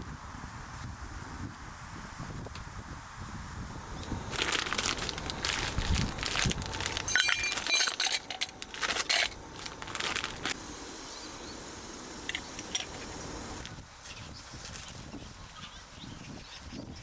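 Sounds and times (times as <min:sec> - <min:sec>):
small hard objects clinking: 0:04.0 - 0:13.7
ringing clink: 0:07.1 - 0:09.4.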